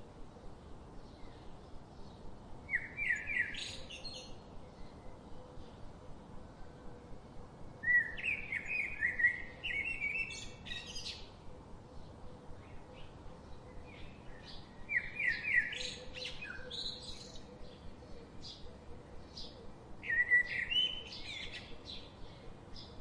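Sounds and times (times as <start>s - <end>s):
faint background hiss: 0.0s - 23.0s.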